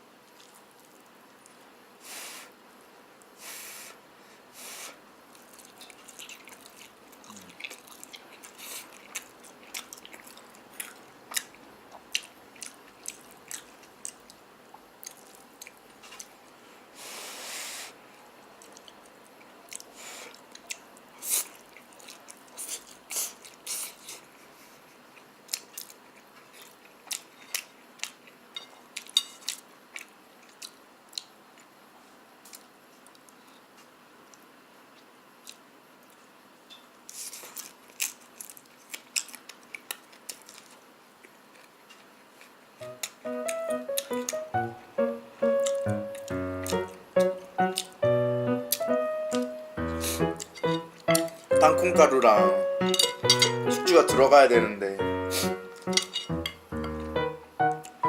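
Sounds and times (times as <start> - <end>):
person chewing noodles: 0.2 - 1.6, 4.6 - 16.6, 18.6 - 31.7, 32.5 - 36.4, 37.0 - 48.0, 48.6 - 51.6
hissy sounds: 3.4 - 5.0, 17.0 - 18.0.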